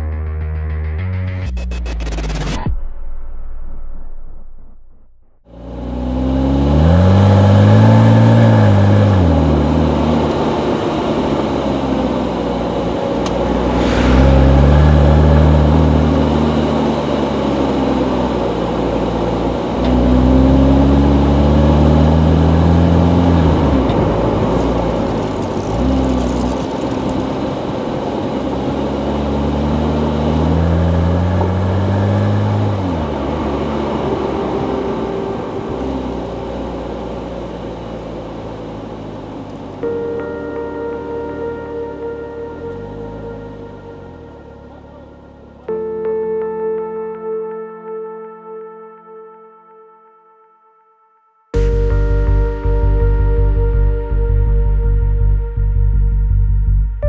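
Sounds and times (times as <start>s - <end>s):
car engine accelerating through gears: 0.0s - 2.7s, 5.4s - 46.2s.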